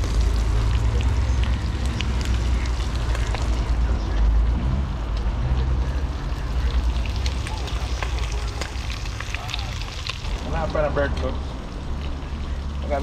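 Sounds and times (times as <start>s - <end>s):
fire crackling and popping: 0.0s - 13.0s.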